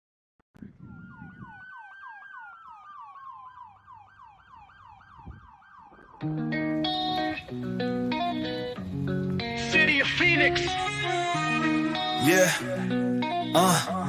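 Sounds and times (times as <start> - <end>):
siren wailing: 0.6 - 8.6
siren yelping: 0.6 - 8.6
guitar music: 6.1 - 14.0.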